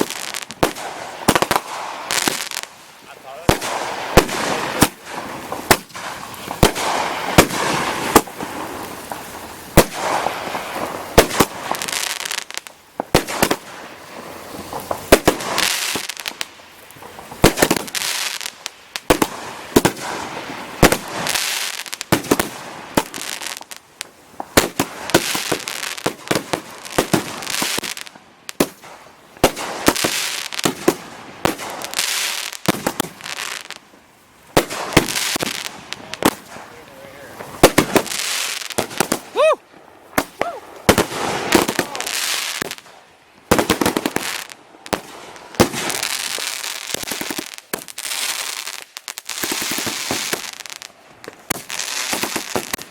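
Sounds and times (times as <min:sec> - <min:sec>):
firework bangs and pops: 0:00.0 - 0:52.9
firework hissing crackle: 0:00.0 - 0:52.9.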